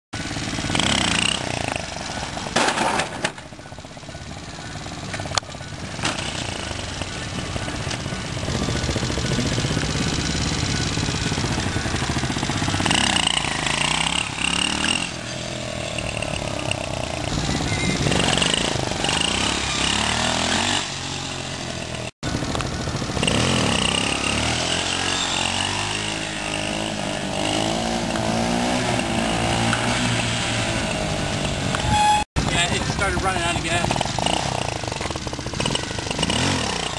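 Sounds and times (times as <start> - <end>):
mini bike engine revving: 0.2 - 36.9.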